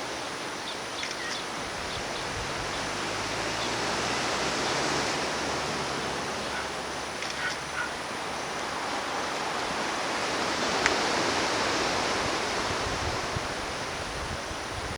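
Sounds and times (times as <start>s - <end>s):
ocean surf on a beach: 0.0s - 14.9s
sharp click: 7.2s - 7.6s.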